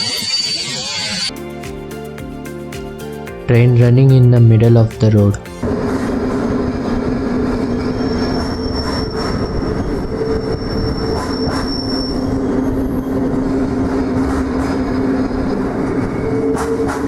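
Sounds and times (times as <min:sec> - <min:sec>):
high wheel squeal: 0:00.0 - 0:01.3, 0:05.9 - 0:17.0
train running on track: 0:00.0 - 0:01.3, 0:05.6 - 0:17.0.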